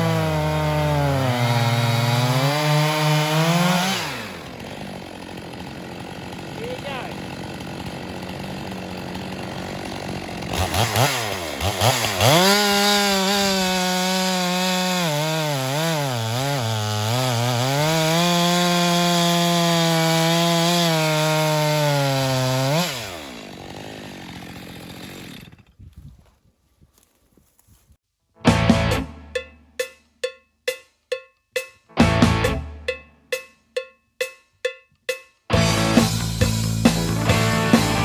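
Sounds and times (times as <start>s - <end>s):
chainsaw cutting log: 0.0s - 26.0s, 35.6s - 38.0s.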